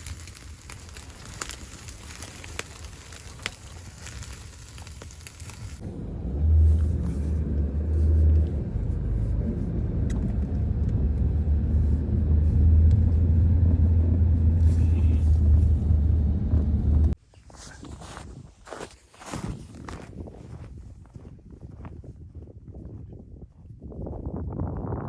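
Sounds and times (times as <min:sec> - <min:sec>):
wind buffeting microphone: 0:18.1 - 0:25.0.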